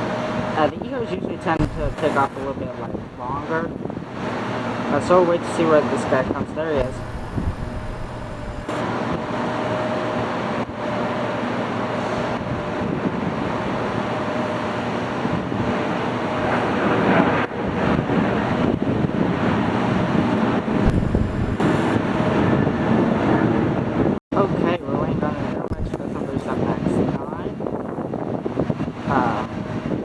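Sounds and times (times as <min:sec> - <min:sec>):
faint jet whine: 0:00.0 - 0:12.4, 0:19.8 - 0:24.6
jet airliner taking off: 0:05.8 - 0:09.0.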